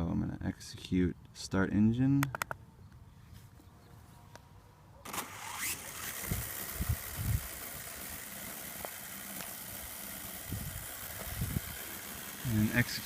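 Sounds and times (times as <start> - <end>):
drone rotor motors whirring: 5.1 - 13.0.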